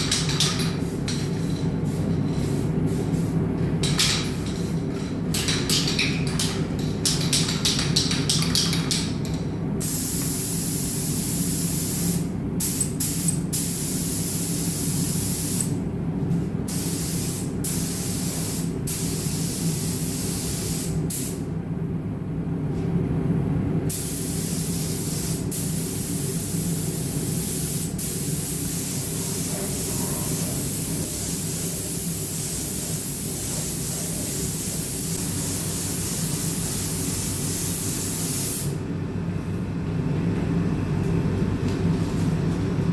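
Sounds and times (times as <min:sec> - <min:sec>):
steady low hum: 0:00.0 - 0:42.9
paint spray gun hissing: 0:09.8 - 0:15.7, 0:16.7 - 0:21.4, 0:23.9 - 0:38.7.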